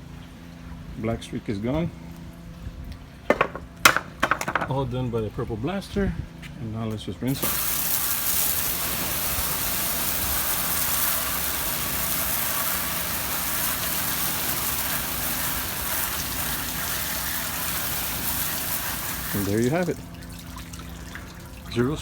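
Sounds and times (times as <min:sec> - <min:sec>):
hose spraying water: 0:07.3 - 0:22.0.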